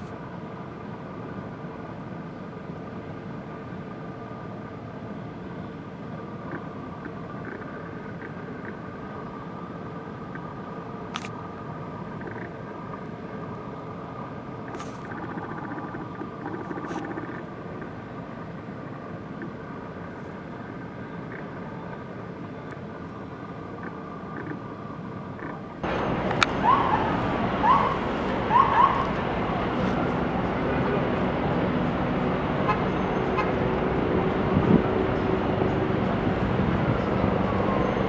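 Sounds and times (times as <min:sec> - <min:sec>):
vehicle engines humming: 0:25.8 - 0:38.0.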